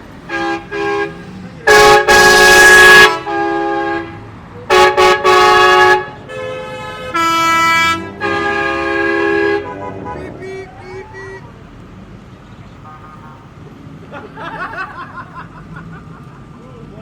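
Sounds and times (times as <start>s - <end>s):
vehicle horns honking: 0.2s - 11.6s, 12.7s - 13.5s.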